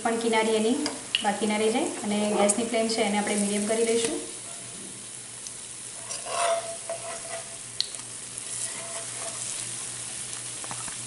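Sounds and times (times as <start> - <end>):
food sizzling in oil: 0.1 - 11.0
steel spatula scraping a pan: 6.0 - 7.6, 8.4 - 9.6.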